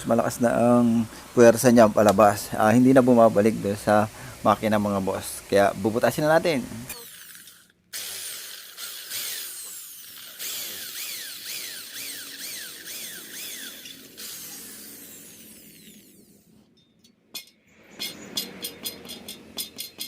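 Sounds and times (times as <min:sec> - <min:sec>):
power drill boring through metal: 0:06.9 - 0:16.5.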